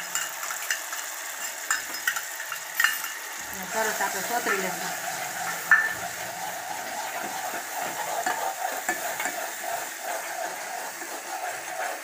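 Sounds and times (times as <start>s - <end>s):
onion paste sizzling in oil: 0.0s - 12.0s
metal spoon scraping pot: 4.3s - 12.0s.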